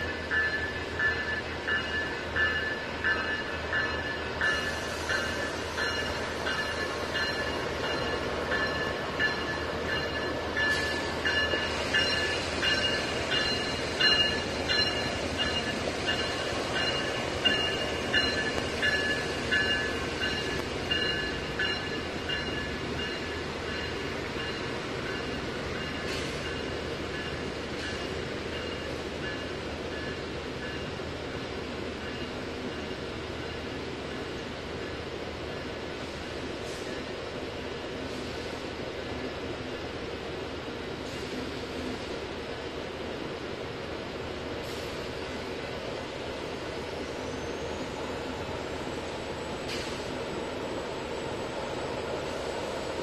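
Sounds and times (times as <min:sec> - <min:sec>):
crossing warning bell ringing: 0:00.0 - 0:35.0
passing train rumble: 0:00.0 - 0:53.0.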